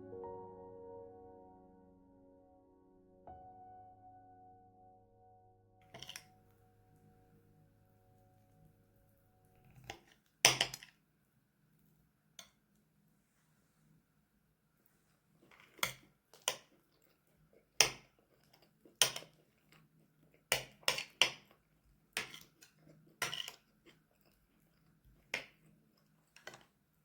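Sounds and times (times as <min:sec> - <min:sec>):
dishes and cutlery clinking: 0:05.8 - 0:06.3, 0:22.2 - 0:25.6.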